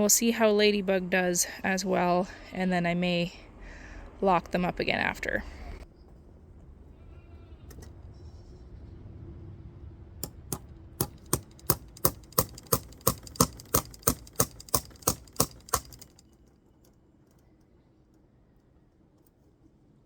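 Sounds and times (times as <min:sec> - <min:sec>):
sharp taps on fence wire: 0:10.2 - 0:16.2.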